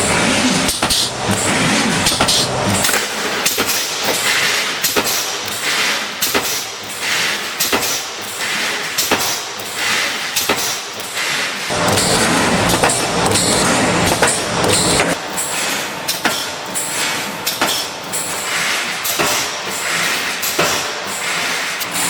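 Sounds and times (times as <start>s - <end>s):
welding machine clunks: 11.7s - 15.2s.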